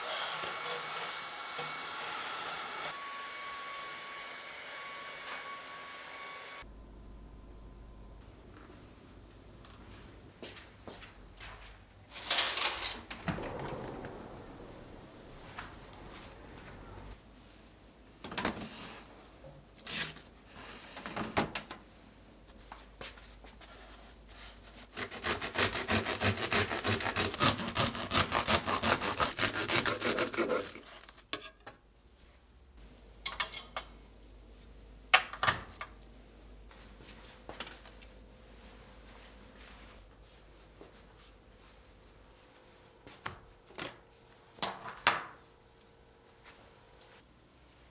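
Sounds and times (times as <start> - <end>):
knocks and clatter of cleaning: 12.2 - 17.2.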